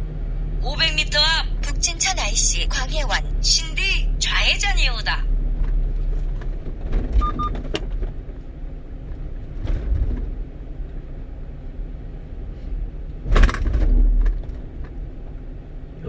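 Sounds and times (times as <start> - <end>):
truck engine and road rumble: 0.0 - 16.0
short double beep: 7.2 - 7.6.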